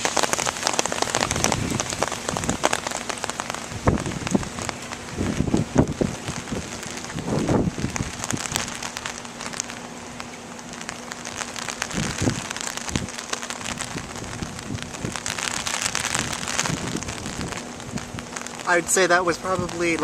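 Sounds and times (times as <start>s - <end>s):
faint steady hum: 0.0s - 20.0s
low rumbles: 0.0s - 20.0s
rain pattering: 0.0s - 20.0s.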